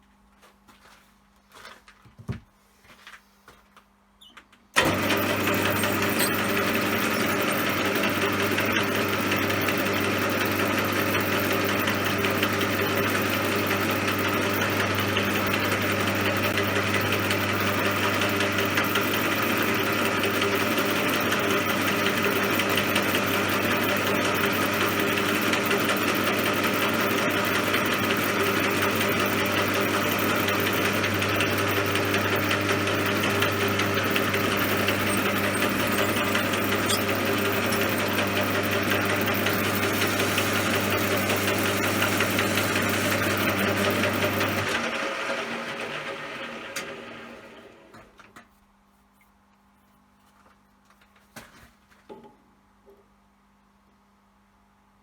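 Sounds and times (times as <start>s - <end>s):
metal lathe motor hum and whir: 4.8s - 47.9s.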